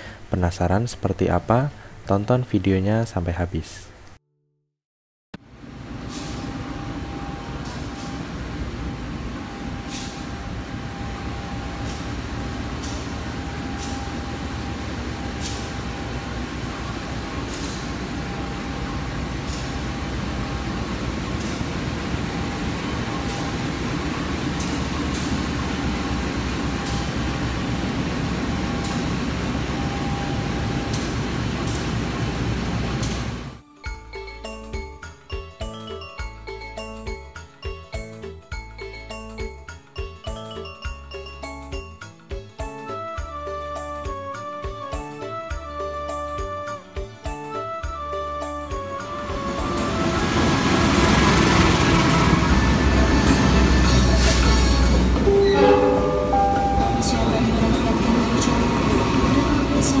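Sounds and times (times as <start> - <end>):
standing train mechanical rumble: 5.5 - 33.6, 48.8 - 60.0
constant high hum: 5.7 - 33.6.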